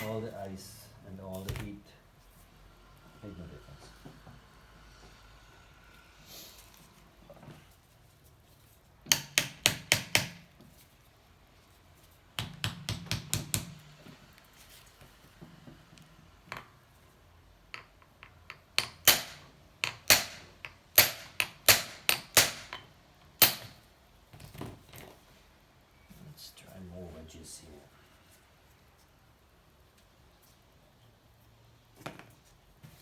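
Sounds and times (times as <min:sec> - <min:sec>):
hammer striking metal: 0:21.0 - 0:22.8.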